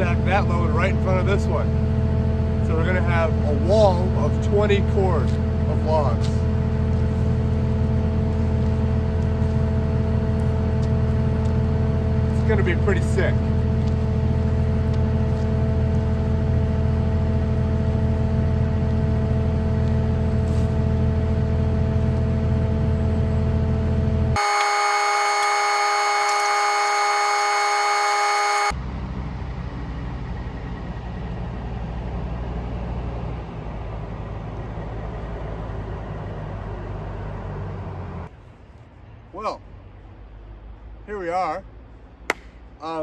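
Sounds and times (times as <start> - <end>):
vehicle engine running: 0.0 - 42.7
high buzzer-like tones: 24.4 - 28.7.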